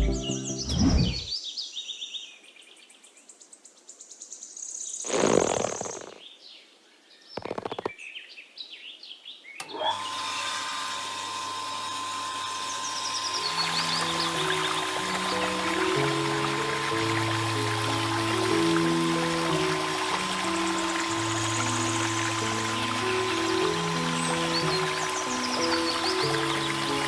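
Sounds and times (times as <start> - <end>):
small electric motor whirring: 9.6 - 27.0
birds chirping: 12.6 - 27.0.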